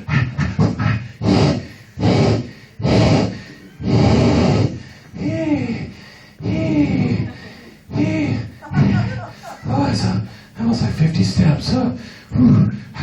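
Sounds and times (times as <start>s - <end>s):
person making vocal sound effects: 0.0s - 9.0s.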